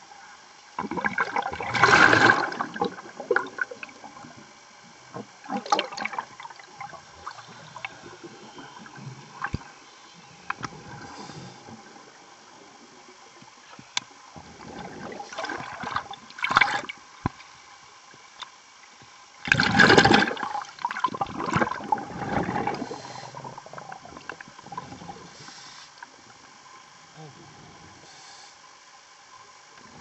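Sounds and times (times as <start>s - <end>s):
underwater bubbles rushing: 0.7s - 9.8s, 10.4s - 17.6s, 19.4s - 26.6s.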